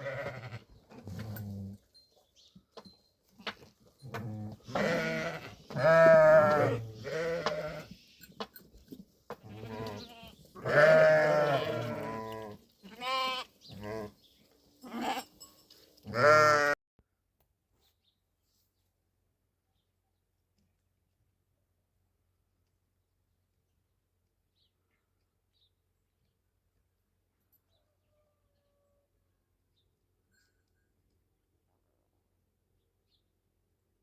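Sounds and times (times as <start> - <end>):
sheep bleating: 0.0 - 0.6, 4.1 - 7.9, 9.4 - 14.2, 14.8 - 15.3, 16.1 - 16.8.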